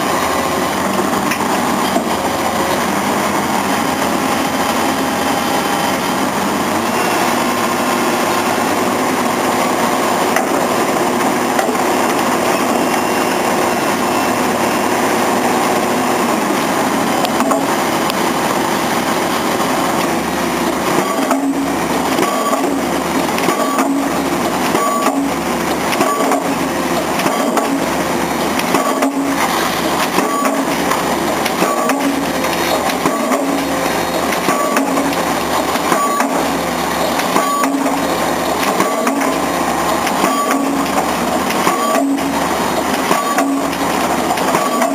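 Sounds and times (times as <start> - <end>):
pile-driving machinery running: 0.0 - 44.9
pile hammer blows: 40.0 - 44.9.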